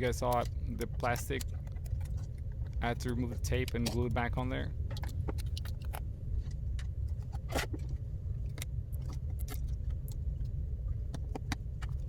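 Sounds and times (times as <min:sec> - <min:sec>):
small tools clicking and tapping: 0:00.0 - 0:04.3
steady low hum: 0:00.0 - 0:12.0.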